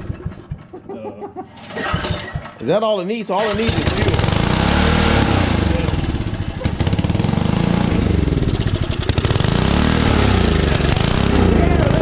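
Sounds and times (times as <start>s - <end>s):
small engine revving: 3.5s - 12.0s.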